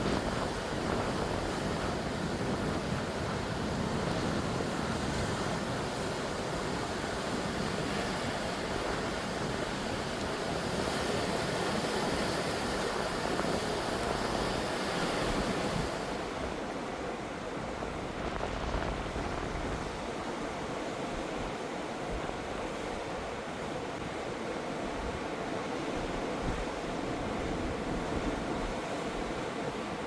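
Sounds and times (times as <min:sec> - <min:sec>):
ocean surf washing on shore: 0:00.0 - 0:30.0
wind: 0:00.0 - 0:30.0.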